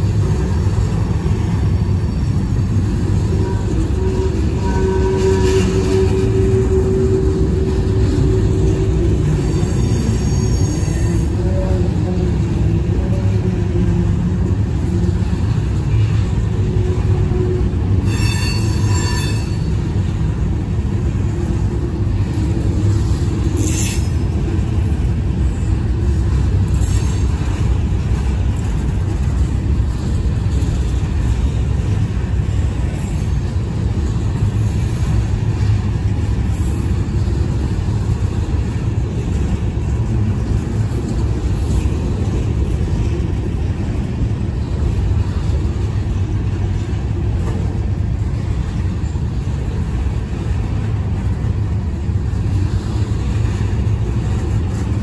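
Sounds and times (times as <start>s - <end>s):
freight train wheels rumbling: 0.0s - 55.0s
wheels squealing: 1.7s - 11.7s, 16.8s - 19.8s.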